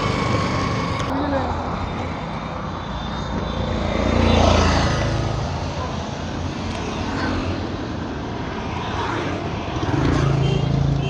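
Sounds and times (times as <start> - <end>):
vehicle engine rumbling: 0.0 - 1.1.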